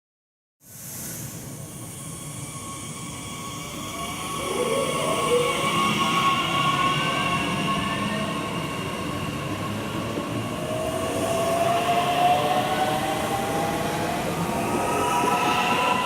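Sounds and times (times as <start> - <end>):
electric train drive whine: 3.2 - 16.0.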